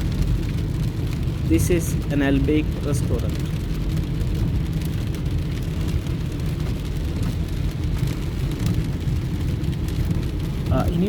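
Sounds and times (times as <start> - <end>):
car road and engine rumble: 0.0 - 11.0
heavy rain on car: 0.0 - 11.0.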